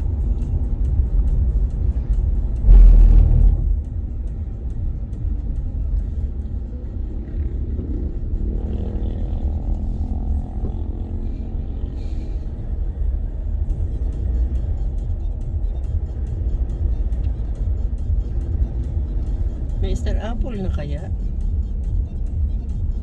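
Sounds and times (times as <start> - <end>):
moving vehicle rumble from inside: 0.0 - 23.0
low surge: 2.5 - 4.2.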